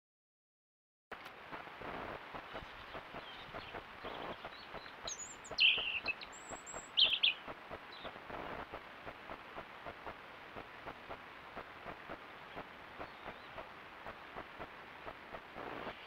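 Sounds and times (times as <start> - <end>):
small birds chirping: 2.3 - 9.2, 11.6 - 16.0.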